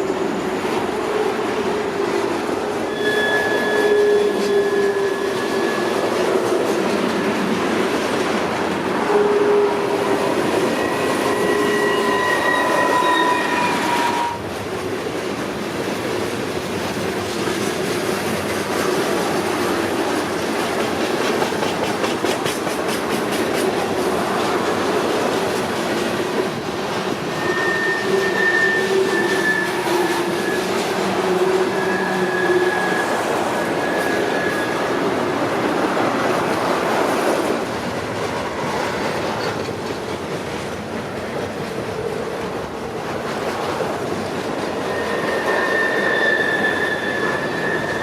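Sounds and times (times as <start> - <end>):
train wheels squealing: 0.0 - 2.2, 2.8 - 7.4, 9.0 - 14.5, 27.2 - 35.1, 44.5 - 48.0
train wheels clicking over rail joints: 13.7 - 31.8, 35.5 - 45.6.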